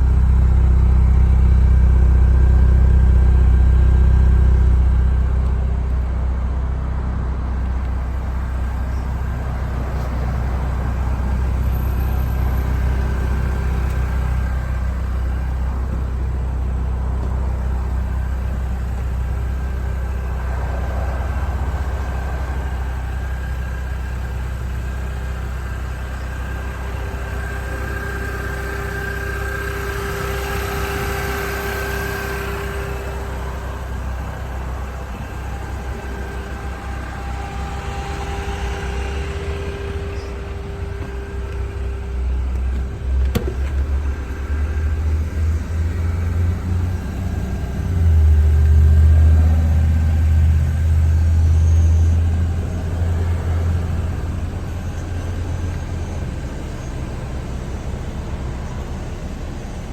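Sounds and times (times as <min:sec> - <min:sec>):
car engine running: 0:00.0 - 0:59.9
faint high whine: 0:21.5 - 0:59.9.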